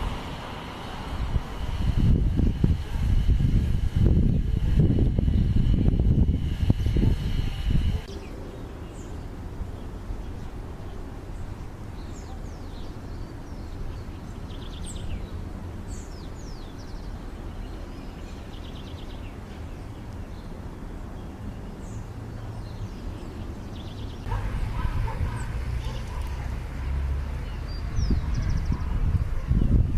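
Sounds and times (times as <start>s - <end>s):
small birds chirping and trilling: 6.4s - 26.5s, 27.2s - 29.9s.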